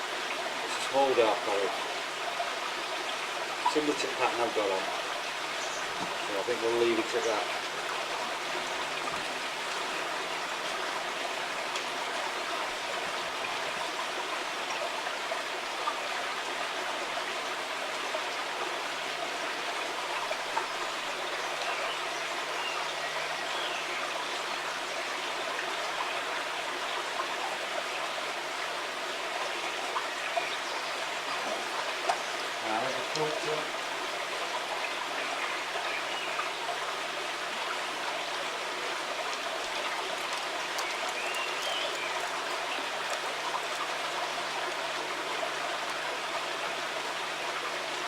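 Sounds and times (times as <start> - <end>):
stream flowing: 0.0 - 48.0.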